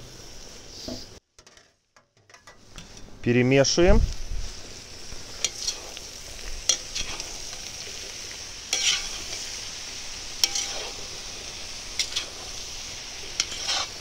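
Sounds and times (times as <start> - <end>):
food sizzling in a pan: 0.0 - 1.2, 1.8 - 14.0
metal spatula scraping a pan: 5.3 - 6.0, 6.6 - 14.0.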